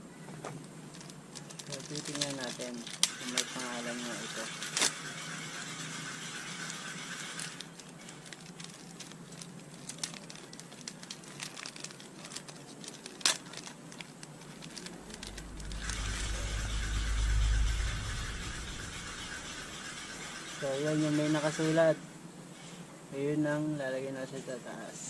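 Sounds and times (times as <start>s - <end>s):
small parts clicking and crinkling: 0.3s - 16.6s
low rumble: 14.3s - 21.5s.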